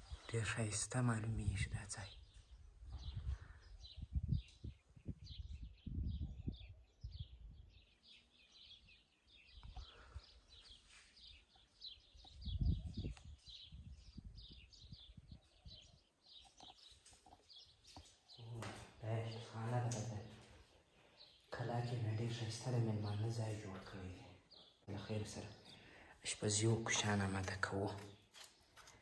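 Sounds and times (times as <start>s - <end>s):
small birds chirping: 0.0s - 29.0s
wind gusts on microphone: 1.4s - 7.9s, 12.0s - 16.0s.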